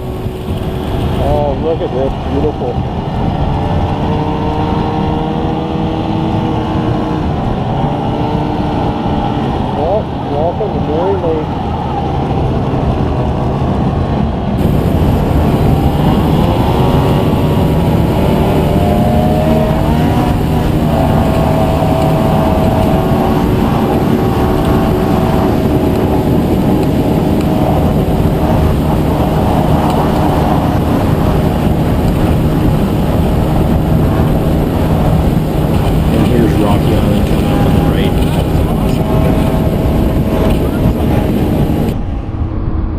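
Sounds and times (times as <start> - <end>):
rushing noise: 0.0 - 42.9
vehicle engine running: 12.9 - 42.1.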